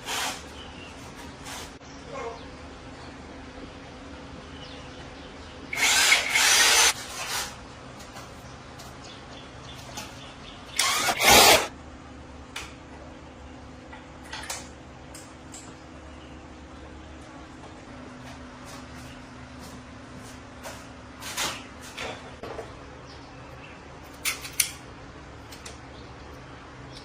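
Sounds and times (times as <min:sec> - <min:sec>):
power tool running: 0:05.7 - 0:07.4, 0:10.8 - 0:11.7.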